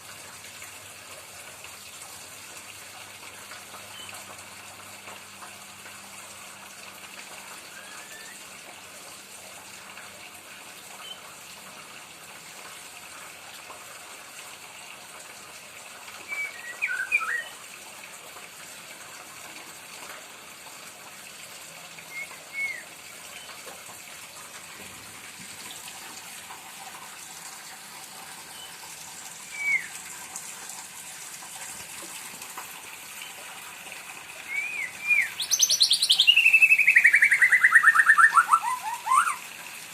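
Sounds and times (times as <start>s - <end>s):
bird chirps: 16.3s - 17.6s, 29.6s - 29.9s, 34.5s - 39.4s.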